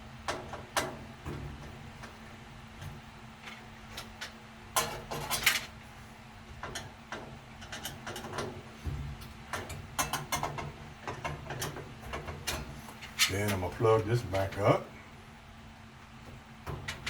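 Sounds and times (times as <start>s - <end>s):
faint steady hum: 0.0s - 17.0s
tools clicking and knocking on metal: 0.2s - 2.2s, 2.8s - 5.7s, 6.6s - 8.6s, 9.2s - 13.7s, 16.2s - 17.0s.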